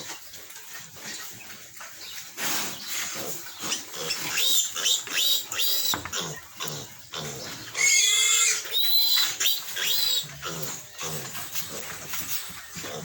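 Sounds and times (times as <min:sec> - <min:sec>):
piglets squealing: 0:03.7 - 0:13.0.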